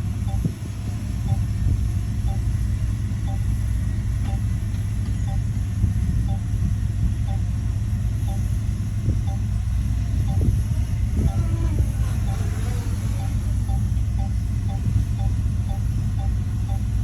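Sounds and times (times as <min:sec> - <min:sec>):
heavy diesel engine rumbling: 0:00.0 - 0:17.0
faint short tone beeping: 0:09.3 - 0:16.9.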